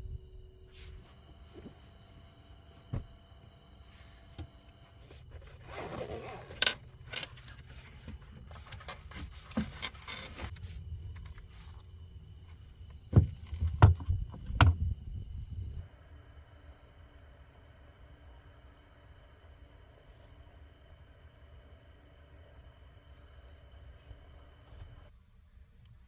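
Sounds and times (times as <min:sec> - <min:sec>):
objects rustling and scraping: 0:00.6 - 0:13.8.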